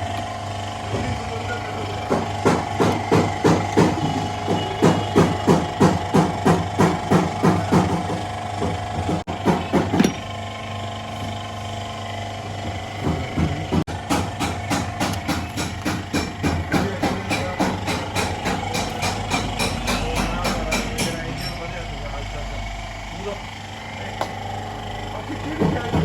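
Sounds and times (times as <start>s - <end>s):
sharp knocking strikes: 2.0s - 10.2s, 12.7s - 21.4s.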